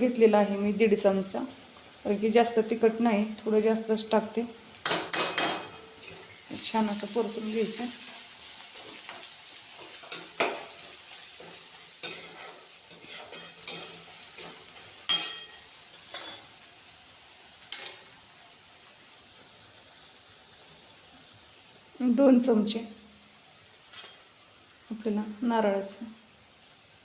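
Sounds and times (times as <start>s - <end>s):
food sizzling in oil: 0.0s - 27.0s
utensil scraping a pan: 11.3s - 14.6s.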